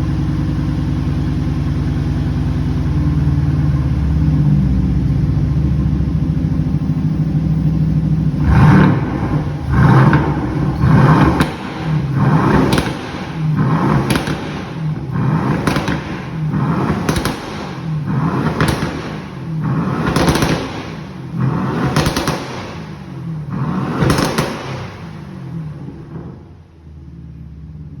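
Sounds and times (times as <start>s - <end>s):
car engine idling: 0.0s - 28.0s
car engine revving: 1.5s - 27.5s.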